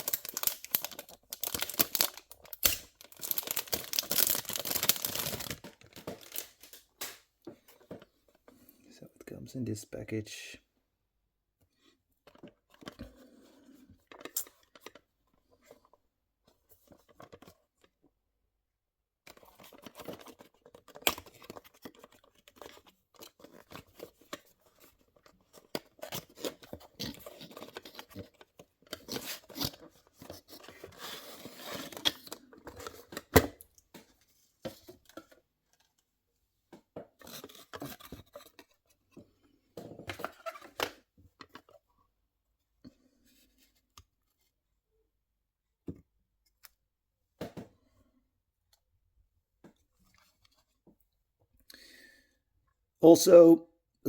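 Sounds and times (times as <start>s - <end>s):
packaging scraping and tearing: 0.0s - 6.8s, 25.9s - 33.1s.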